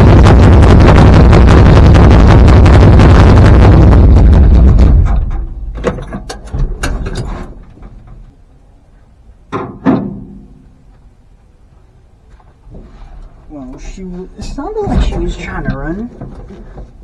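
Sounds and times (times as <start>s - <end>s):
truck engine dying with pops: 0.0s - 11.2s.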